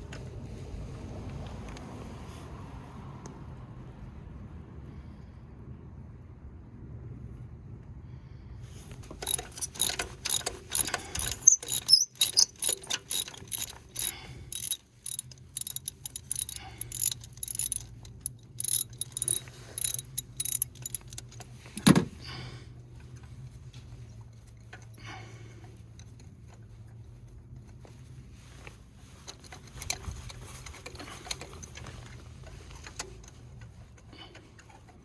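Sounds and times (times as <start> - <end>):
socket ratchet clicking: 9.0 - 21.9.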